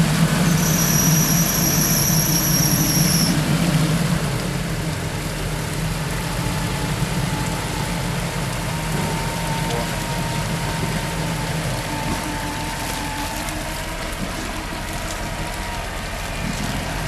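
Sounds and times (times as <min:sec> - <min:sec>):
engine running at low revs: 0:00.0 - 0:17.0
high-pitched squeal: 0:00.3 - 0:03.4.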